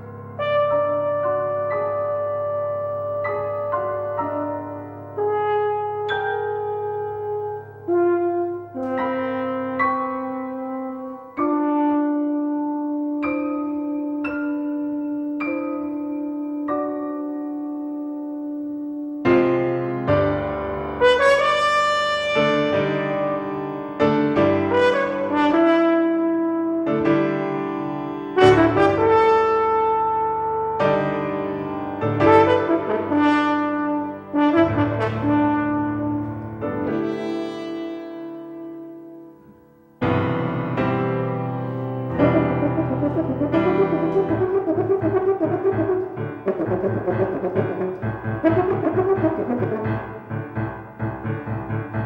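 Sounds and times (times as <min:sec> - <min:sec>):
sustained trumpet notes: 0:00.0 - 0:14.2, 0:28.4 - 0:31.0, 0:32.0 - 0:39.5, 0:42.1 - 0:50.4
piano chords: 0:00.0 - 0:52.0
sustained keyboard chords: 0:38.7 - 0:52.0.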